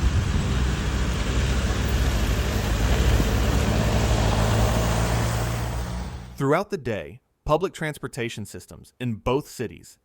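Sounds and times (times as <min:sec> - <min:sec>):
traffic engine rumble: 0:00.0 - 0:06.4
tyres hissing on road: 0:00.0 - 0:06.4.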